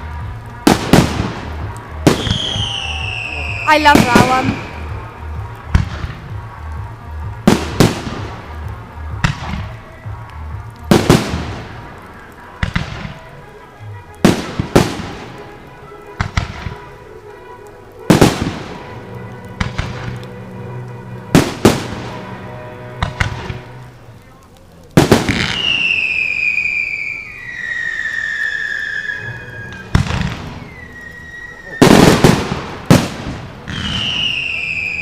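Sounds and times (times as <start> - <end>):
firework bangs: 0.0 - 35.0
firework crackle: 0.0 - 35.0.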